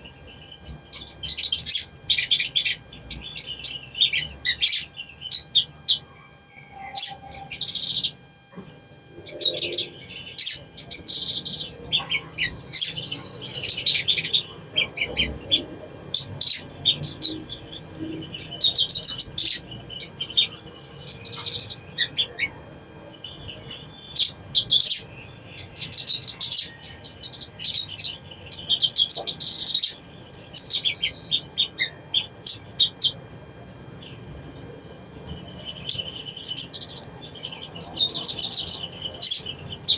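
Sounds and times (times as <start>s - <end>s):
sunbird twittering: 0.0s - 39.9s.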